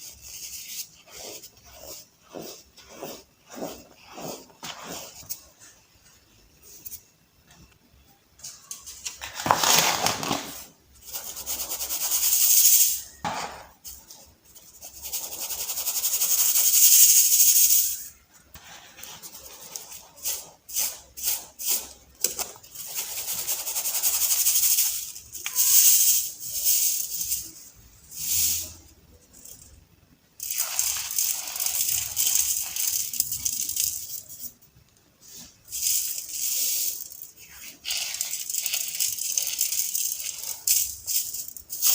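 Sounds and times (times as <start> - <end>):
baking soda balls crunching: 0.0 - 5.7, 24.8 - 29.8, 30.4 - 34.6.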